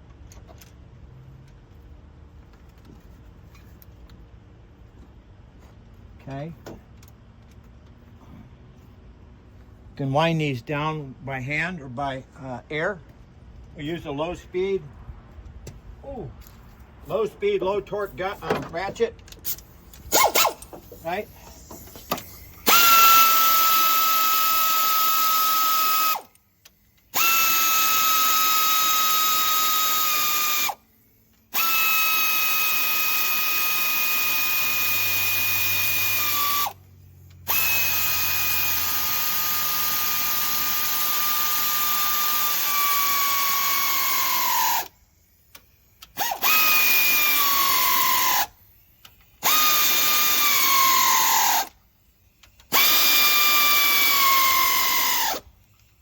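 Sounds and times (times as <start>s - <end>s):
air ratchet whining: 19.3s - 56.0s.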